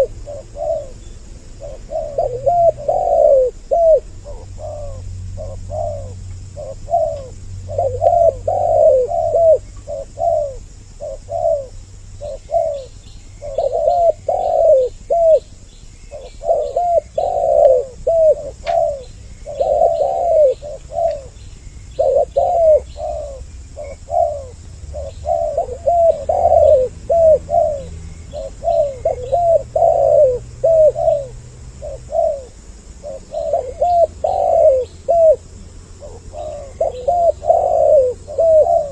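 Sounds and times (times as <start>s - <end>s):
doves cooing: 0.0s - 38.9s
small birds chirping: 0.0s - 38.9s.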